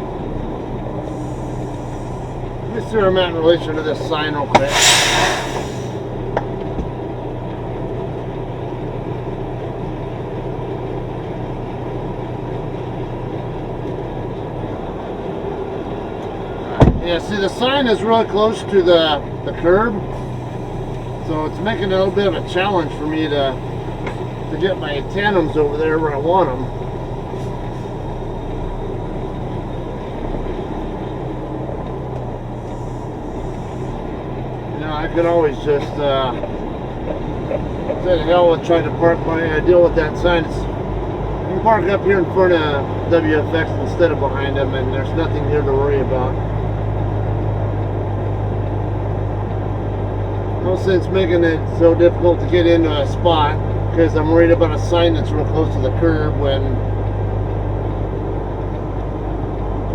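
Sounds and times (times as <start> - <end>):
diesel truck engine idling: 0.0 - 59.9
air hiss: 1.1 - 2.5, 4.6 - 6.1.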